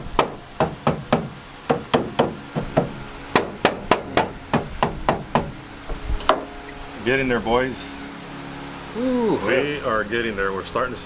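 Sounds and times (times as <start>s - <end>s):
hammer striking steel panel: 0.0s - 5.6s.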